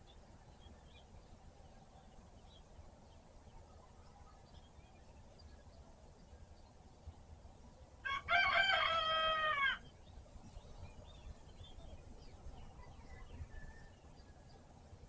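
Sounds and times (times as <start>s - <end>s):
faint bird chirps: 0.0s - 6.8s, 10.0s - 14.7s
rooster crowing: 8.0s - 9.8s.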